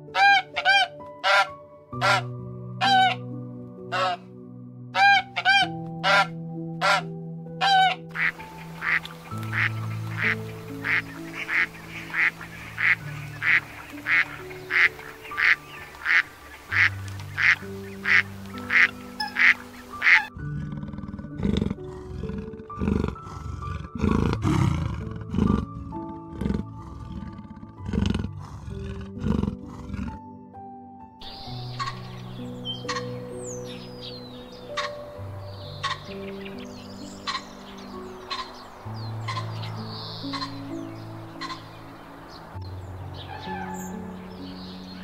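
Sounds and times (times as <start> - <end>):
gentle instrumental music: 0.0 - 45.0
duck quacking: 0.2 - 3.2, 3.9 - 4.2, 5.0 - 20.3.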